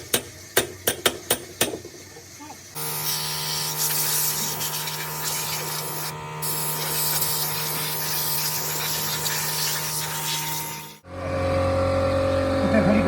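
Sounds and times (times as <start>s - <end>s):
low machine hum: 4.3s - 8.0s, 10.7s - 13.0s.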